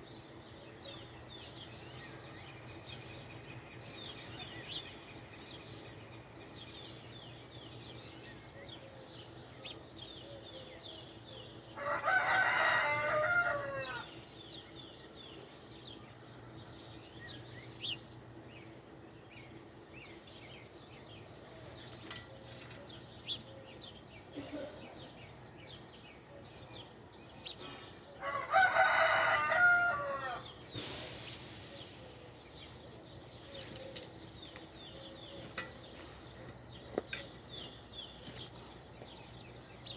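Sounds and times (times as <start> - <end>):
rooster crowing: 11.8 - 14.1, 28.2 - 30.5
small birds chirping: 13.9 - 28.2, 30.3 - 39.9.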